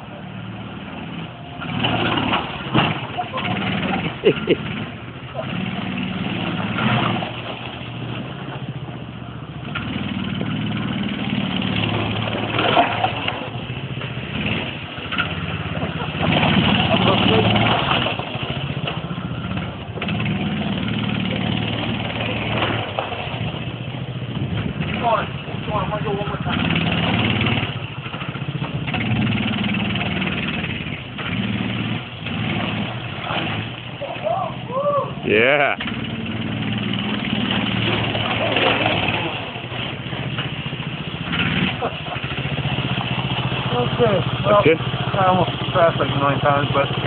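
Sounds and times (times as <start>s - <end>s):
mini bike engine running: 1.1s - 47.0s.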